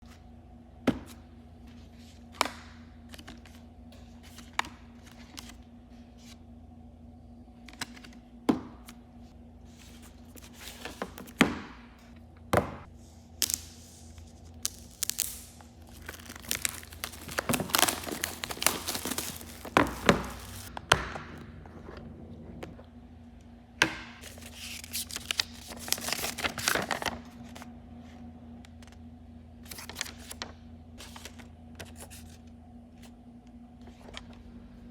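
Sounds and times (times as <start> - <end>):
packaging crinkling and tearing: 13.4 - 20.7, 24.2 - 27.6
packaging knocks and clicks: 15.9 - 20.8.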